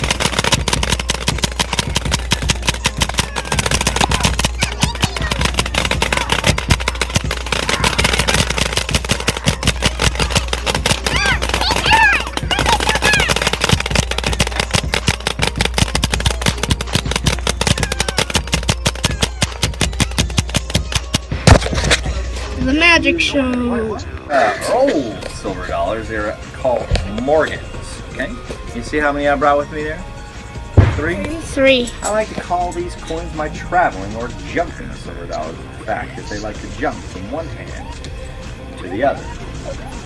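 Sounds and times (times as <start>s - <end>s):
paintball gun firing rapidly: 0.0s - 21.6s, 30.8s - 31.8s.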